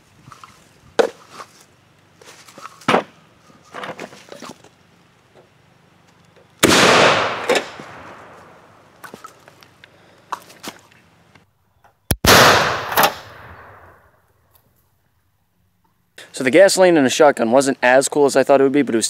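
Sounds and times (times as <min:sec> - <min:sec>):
shotgun blast: 0:06.6 - 0:08.6, 0:12.1 - 0:14.0
sharp crack: 0:06.6 - 0:08.8, 0:12.1 - 0:14.0.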